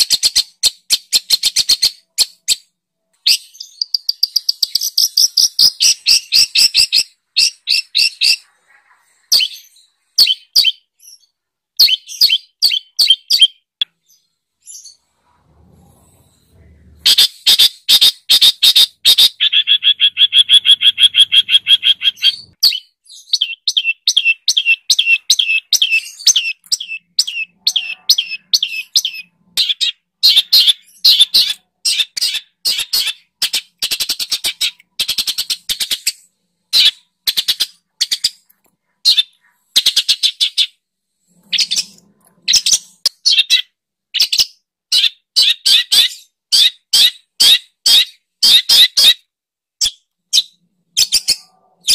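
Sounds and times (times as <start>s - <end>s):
songbird sharp chirps: 0.0s - 15.0s, 17.1s - 40.8s.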